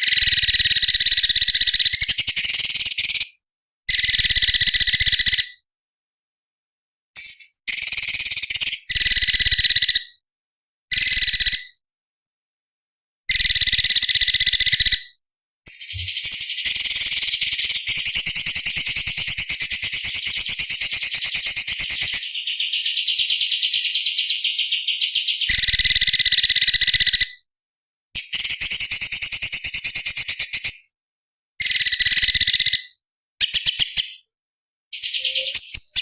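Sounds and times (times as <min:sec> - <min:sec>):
bird singing rapid high notes: 0:35.0 - 0:36.0.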